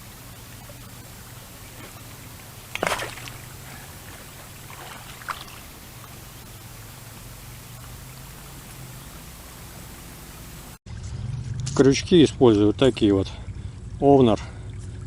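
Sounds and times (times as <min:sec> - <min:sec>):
flowing water: 0:00.0 - 0:10.8
water splash: 0:00.0 - 0:10.8
low hum: 0:00.0 - 0:15.0.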